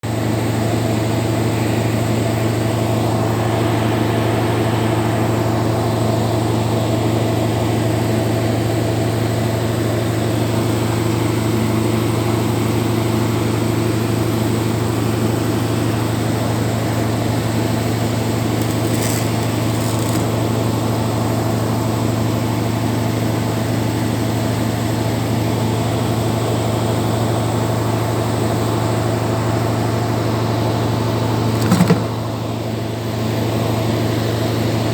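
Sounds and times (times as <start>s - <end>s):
air conditioning compressor humming: 16.8s - 21.1s, 31.0s - 32.5s.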